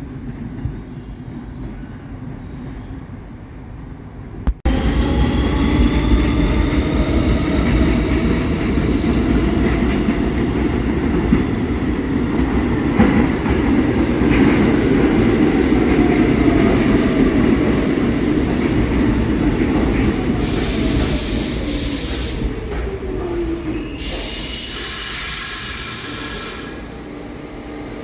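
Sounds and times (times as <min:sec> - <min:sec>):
subway train rumbling: 0:00.0 - 0:28.0.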